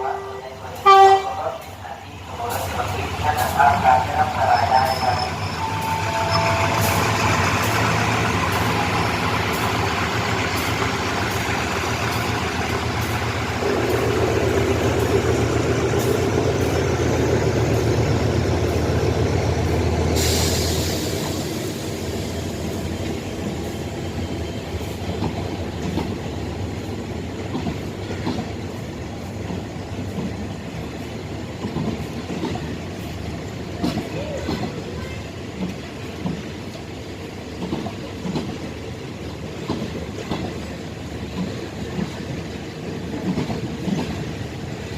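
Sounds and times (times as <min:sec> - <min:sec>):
diesel train engine humming: 0:00.0 - 0:44.9
air hiss burst: 0:20.1 - 0:22.3.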